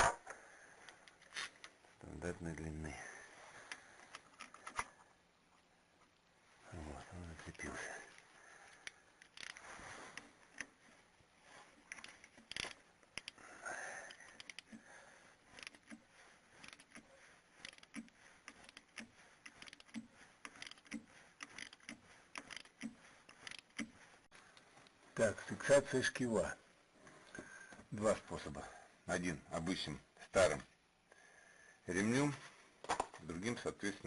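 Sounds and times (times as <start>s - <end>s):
hand tools clicking and scraping: 11.6s - 24.3s.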